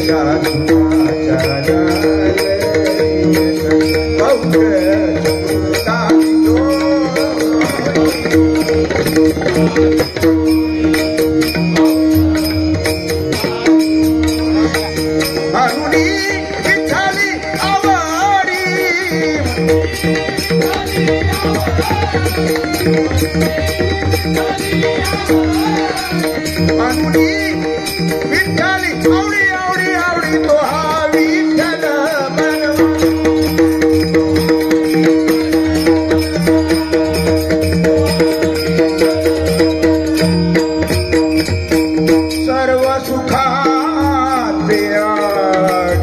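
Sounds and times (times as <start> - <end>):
hand drum beat: 0.0 - 29.5.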